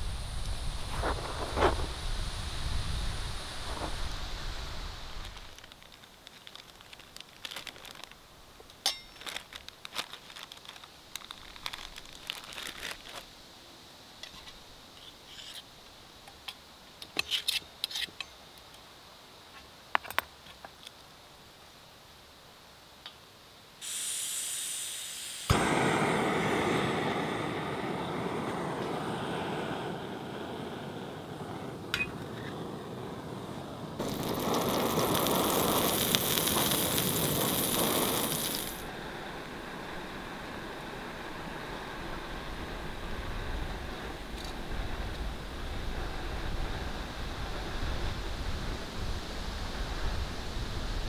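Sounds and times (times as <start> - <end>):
fork and spoon scraping in a pan: 14.3 - 15.7
burner igniting click: 23.8 - 30.8, 34.0 - 38.8
gas valve hissing: 23.8 - 38.9
gas burner rushing: 23.8 - 40.0.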